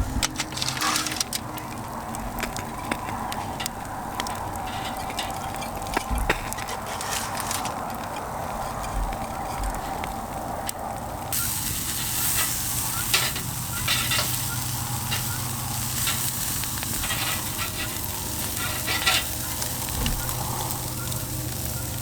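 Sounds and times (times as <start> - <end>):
fire pops and crackles: 0.0 - 22.0
meat sizzling on a grill: 11.3 - 22.0.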